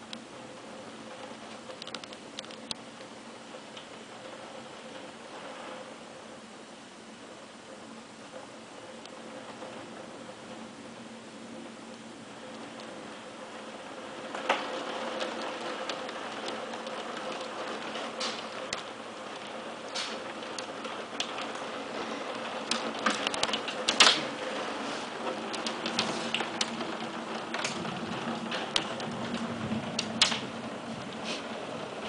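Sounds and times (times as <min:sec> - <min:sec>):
rain hiss: 0:00.0 - 0:32.0
hailstones striking hard surfaces: 0:13.8 - 0:32.0.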